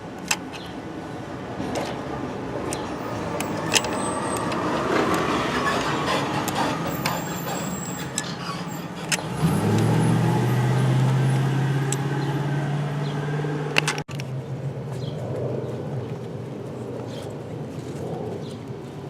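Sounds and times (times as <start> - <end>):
vehicle engine hum: 0.0 - 19.0
sharp clicks: 2.7 - 5.3.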